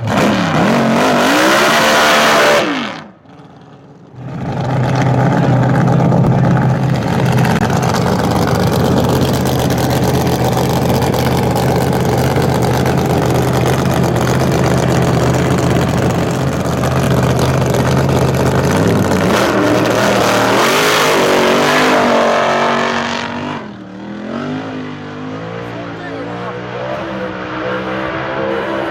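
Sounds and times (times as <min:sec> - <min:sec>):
car engine revving: 0:00.0 - 0:28.9.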